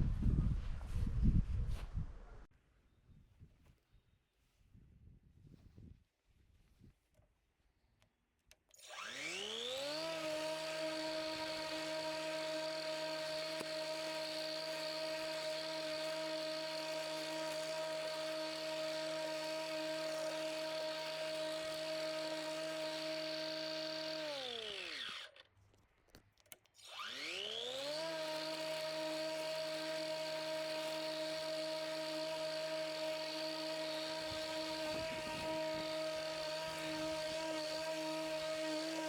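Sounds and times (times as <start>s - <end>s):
electric lawnmower motor whine: 8.7s - 25.5s, 26.8s - 39.0s.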